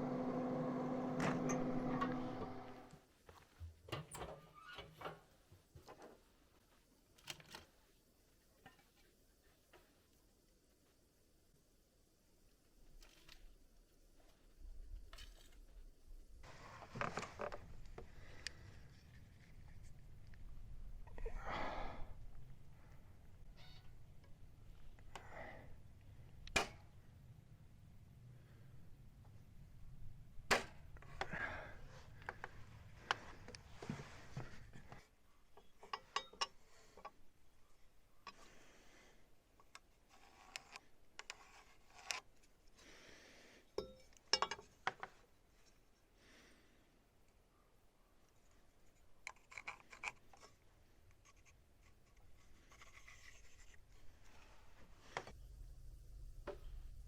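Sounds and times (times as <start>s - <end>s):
low hum: 0.0s - 3.0s, 55.4s - 57.0s.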